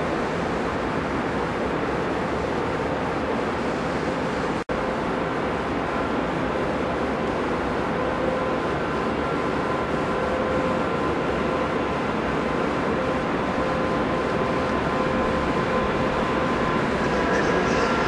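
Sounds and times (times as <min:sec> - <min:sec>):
train rumbling: 0:14.1 - 0:18.0.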